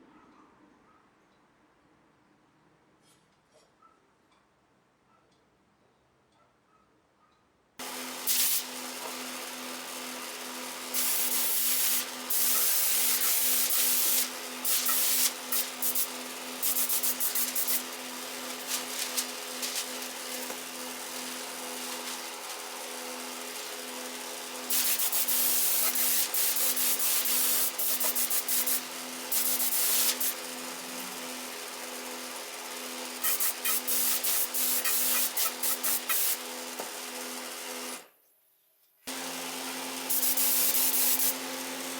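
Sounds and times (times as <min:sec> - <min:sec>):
electric grinder running: 0:07.8 - 0:38.1, 0:39.1 - 0:41.9.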